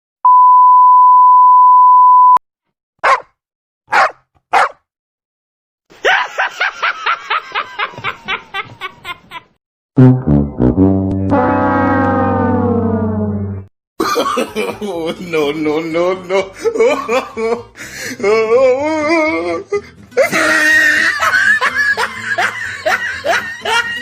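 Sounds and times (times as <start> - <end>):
high censor bleep: 0.2 - 2.4
dog barks: 3.0 - 4.8
low brassy blast: 10.0 - 13.7.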